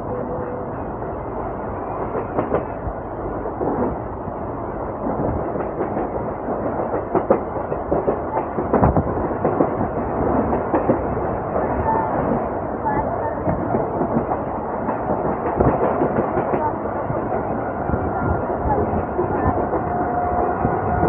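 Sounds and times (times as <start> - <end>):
train running on track: 0.0 - 21.0.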